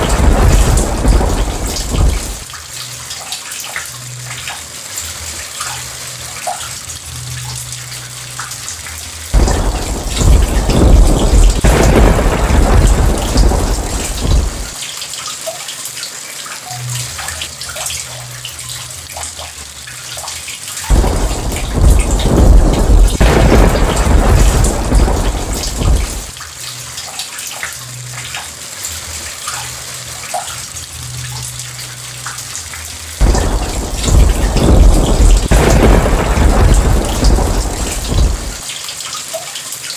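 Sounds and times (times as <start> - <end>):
thunder rumbling: 0.0 - 2.5, 9.4 - 14.8, 20.9 - 26.4, 33.2 - 38.6
steady rain: 0.0 - 39.9.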